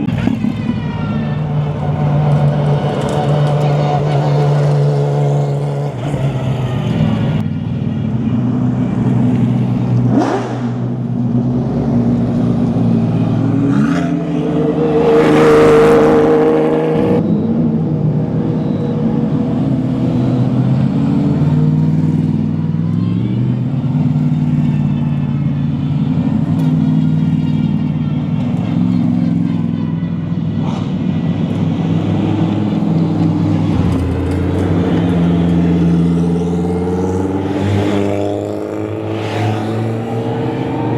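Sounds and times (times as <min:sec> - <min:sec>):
race car engines at low revs: 0:00.0 - 0:40.9
car revving loudly: 0:09.6 - 0:17.2, 0:30.6 - 0:40.9.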